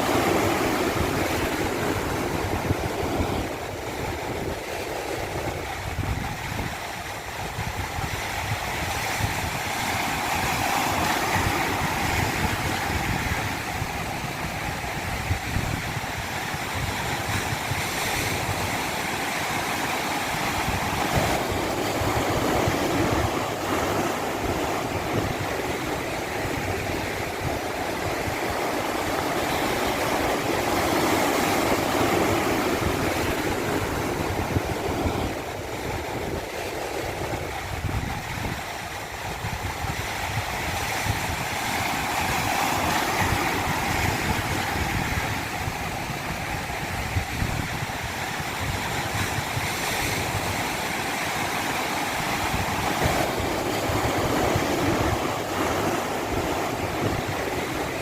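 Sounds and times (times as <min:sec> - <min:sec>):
stream rushing down a cascade: 0:00.0 - 0:58.0.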